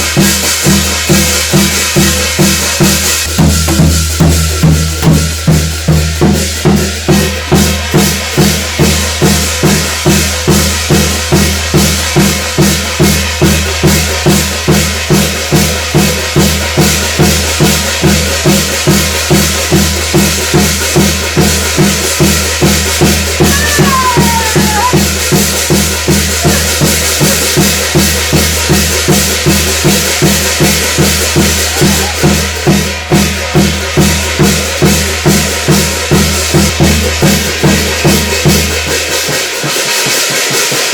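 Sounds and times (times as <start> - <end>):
drum beaten steadily: 0.0 - 40.9
wavering high note: 23.4 - 25.0.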